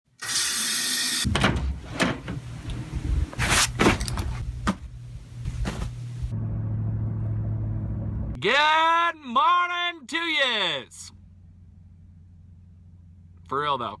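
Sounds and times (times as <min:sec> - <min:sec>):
car engine hum from cabin: 0:04.0 - 0:08.4, 0:11.1 - 0:14.0.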